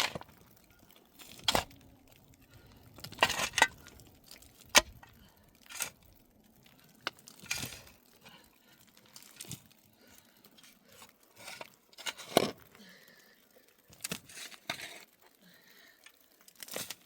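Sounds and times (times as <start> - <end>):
crinkling and rustling: 0.0 - 12.8, 13.8 - 15.4, 16.0 - 17.0.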